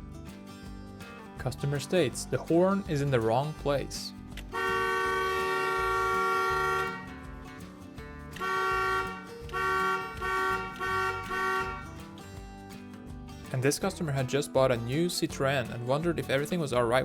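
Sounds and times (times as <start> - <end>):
car horn honking: 4.5 - 7.1, 8.4 - 11.9.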